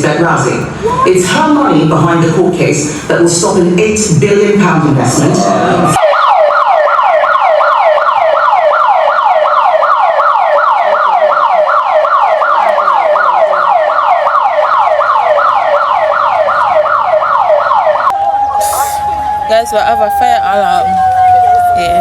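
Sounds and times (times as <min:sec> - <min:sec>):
fire alarm sweeping tone: 0:05.4 - 0:22.0.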